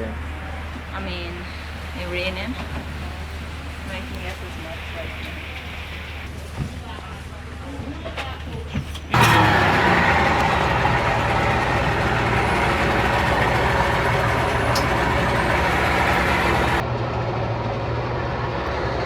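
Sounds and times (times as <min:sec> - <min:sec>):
speedboat engine idling: 0:09.2 - 0:16.8.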